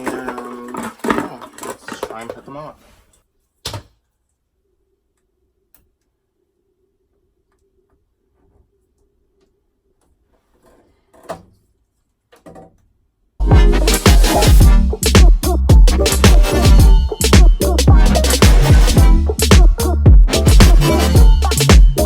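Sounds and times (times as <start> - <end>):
loud upbeat music: 13.4 - 22.0.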